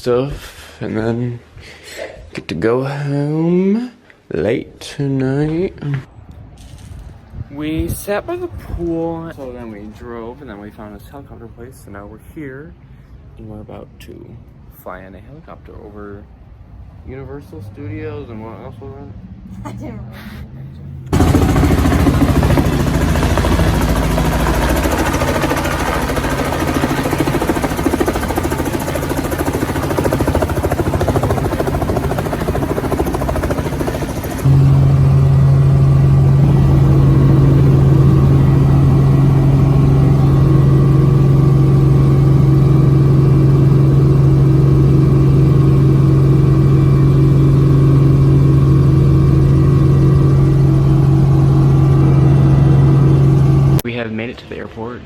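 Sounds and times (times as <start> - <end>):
strong low hum: 20.5 - 53.8
helicopter engine and rotor: 21.1 - 53.8.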